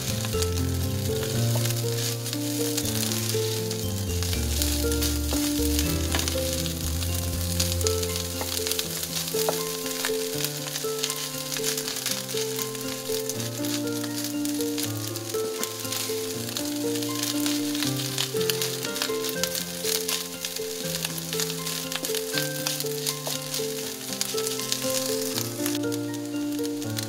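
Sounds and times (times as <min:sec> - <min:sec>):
spatula stirring rice: 0:00.0 - 0:25.8
background music with held notes: 0:00.0 - 0:27.0
rice sizzling in frying pan: 0:00.0 - 0:27.0.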